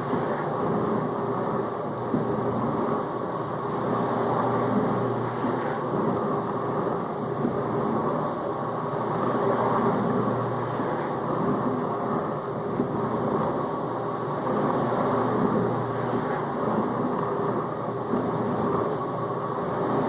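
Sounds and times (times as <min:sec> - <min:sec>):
dishwasher pump hum: 0:00.0 - 0:20.0
water spraying in dishwasher: 0:03.8 - 0:08.4.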